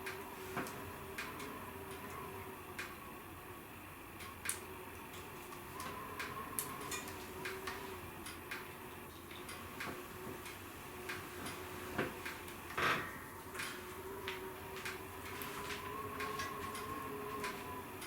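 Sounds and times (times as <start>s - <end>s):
wood fire crackling: 13.5s - 17.8s.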